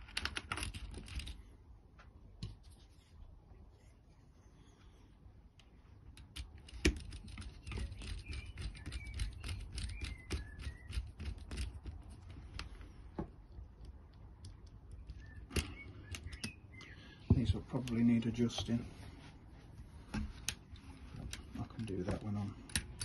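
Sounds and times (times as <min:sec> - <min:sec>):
small parts clicking and rattling: 0:00.0 - 0:01.5, 0:05.6 - 0:16.6, 0:20.1 - 0:23.0.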